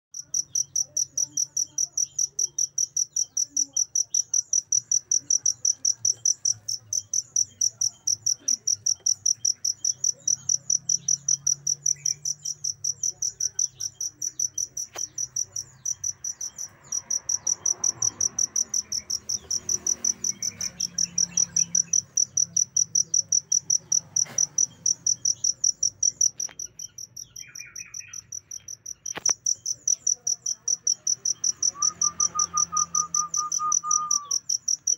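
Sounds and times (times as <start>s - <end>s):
cricket chirping: 0.2s - 34.9s.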